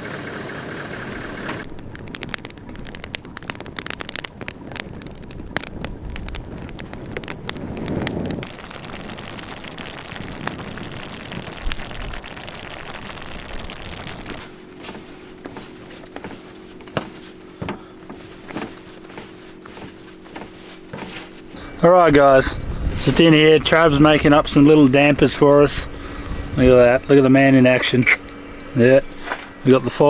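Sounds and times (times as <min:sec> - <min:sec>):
low steady hum: 0:00.0 - 0:30.0
campfire crackling and popping: 0:00.2 - 0:30.0
steady rushing noise: 0:01.6 - 0:15.1, 0:21.6 - 0:30.0.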